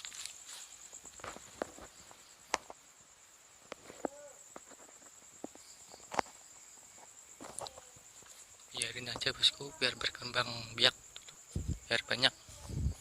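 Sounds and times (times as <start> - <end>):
footsteps in undergrowth: 0.0 - 2.7
rustles in undergrowth: 0.0 - 10.4, 11.3 - 13.0
crickets trilling: 0.0 - 13.0.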